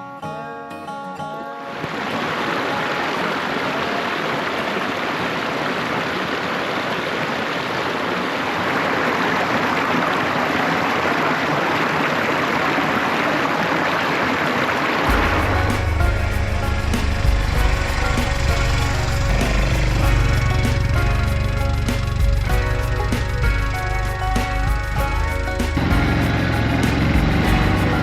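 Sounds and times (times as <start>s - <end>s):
rushing water: 1.5s - 28.0s
low rumble: 15.1s - 28.0s.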